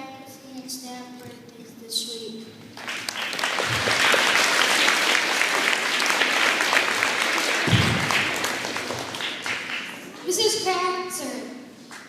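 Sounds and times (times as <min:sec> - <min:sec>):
children clapping: 0:02.8 - 0:10.2.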